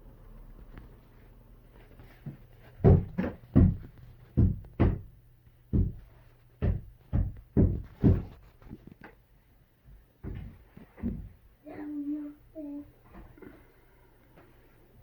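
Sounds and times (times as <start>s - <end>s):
sudden uneven thumps: 2.2s - 5.1s, 5.7s - 8.4s, 10.2s - 11.4s.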